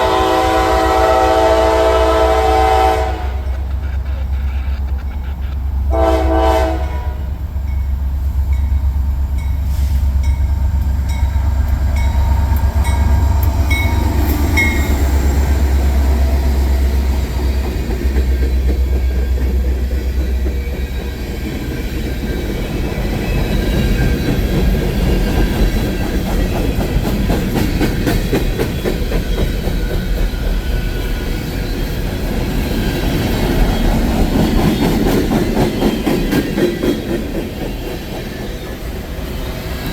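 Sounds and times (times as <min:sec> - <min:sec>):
locomotive horn blast: 0:00.0 - 0:03.8, 0:05.8 - 0:07.4
diesel locomotive rumble: 0:00.0 - 0:39.9
train wheels clickety-clack: 0:00.0 - 0:39.9.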